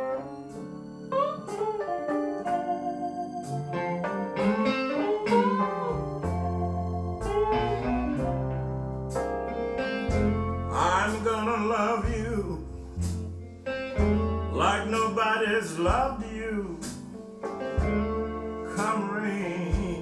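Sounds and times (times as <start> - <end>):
electric guitar: 0.0 - 20.0
organ chords: 0.0 - 20.0
deep bass notes: 5.6 - 17.1, 17.8 - 18.7, 19.7 - 20.0
man singing with vibrato: 10.7 - 12.8, 14.5 - 16.9, 18.6 - 20.0.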